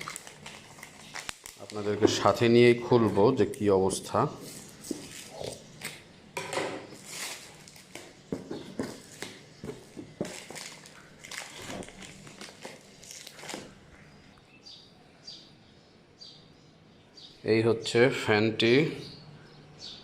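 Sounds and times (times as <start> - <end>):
packaging crinkling and rustling: 0.0 - 3.7, 4.4 - 6.0, 6.9 - 14.1.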